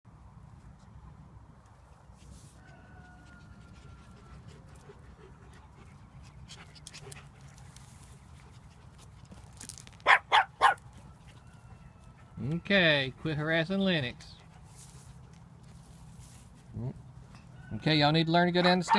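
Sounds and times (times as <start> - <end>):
puppy yapping: 10.0 - 10.8.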